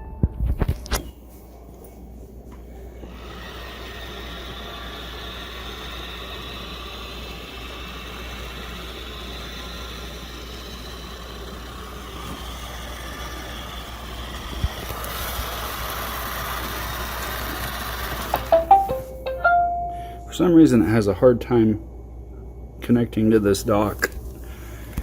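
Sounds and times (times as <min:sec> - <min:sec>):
robot vacuum whirring: 0:03.0 - 0:19.1.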